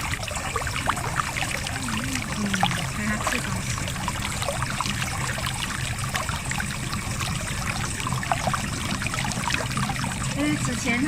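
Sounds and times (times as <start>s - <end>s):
stream water splashing over rocks: 0.0s - 11.0s.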